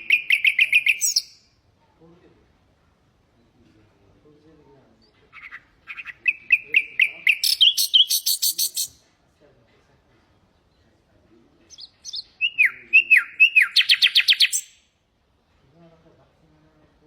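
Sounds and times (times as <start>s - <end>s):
nightingale singing: 0.0s - 1.5s, 5.0s - 9.0s, 11.7s - 14.9s.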